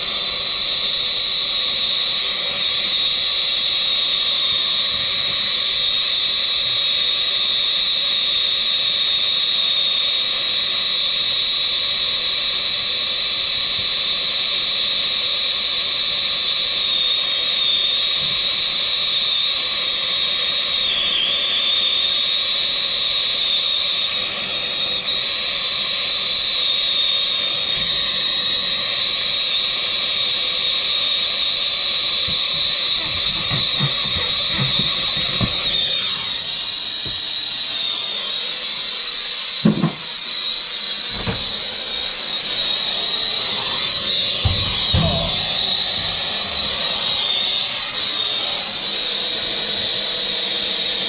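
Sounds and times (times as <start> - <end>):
gas torch hissing and whistling: 0.0 - 51.0
low knocks: 42.6 - 47.2.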